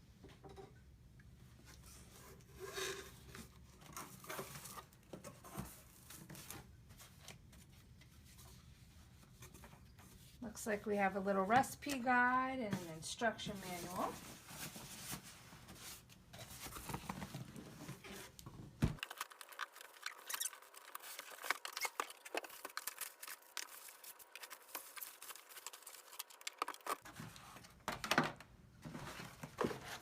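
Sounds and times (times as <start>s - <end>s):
packing materials rustling: 19.0s - 27.8s.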